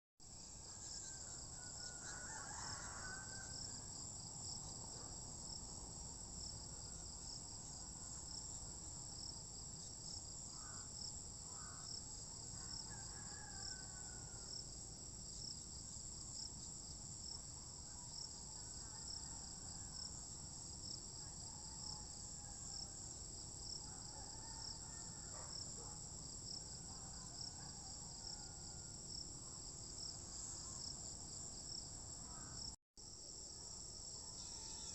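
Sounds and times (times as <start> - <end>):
faint rooster crowing: 0.6 - 4.3, 11.5 - 14.8, 17.8 - 20.4, 21.1 - 29.7, 34.1 - 34.9
crickets trilling: 6.3 - 14.7, 33.6 - 34.9.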